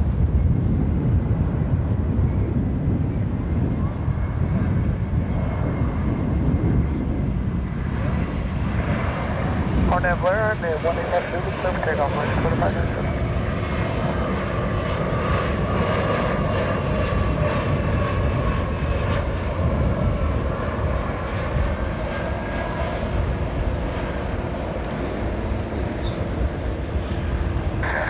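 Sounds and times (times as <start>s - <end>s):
jet engines rumbling: 0.0s - 28.0s.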